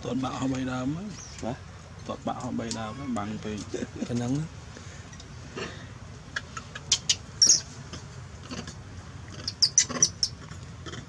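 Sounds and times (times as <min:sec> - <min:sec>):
baby monkey squeaking and crying: 0:06.8 - 0:07.7, 0:09.4 - 0:10.4.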